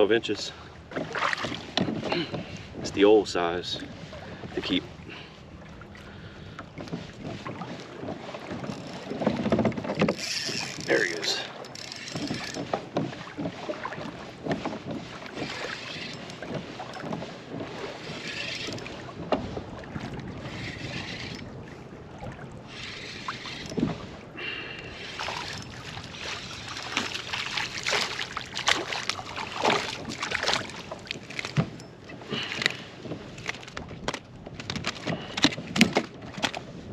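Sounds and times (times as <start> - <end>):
water sloshing and splashing: 0.0 - 36.9
wind on microphone: 18.0 - 31.2.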